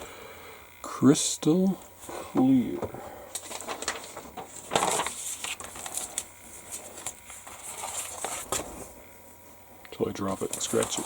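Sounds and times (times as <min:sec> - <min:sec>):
plastic crackling and clicking: 0:03.3 - 0:06.3, 0:10.3 - 0:11.0.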